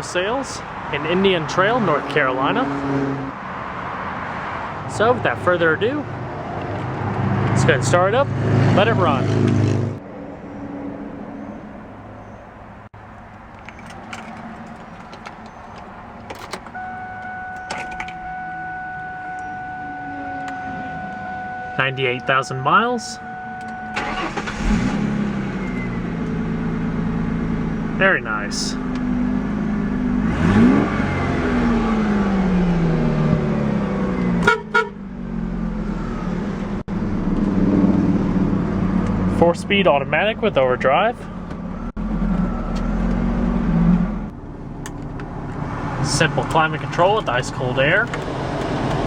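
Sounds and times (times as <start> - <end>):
car engine idling: 11.3 - 49.0
steady electronic tone: 16.8 - 24.2
car horn toots: 16.8 - 25.0, 34.4 - 35.0.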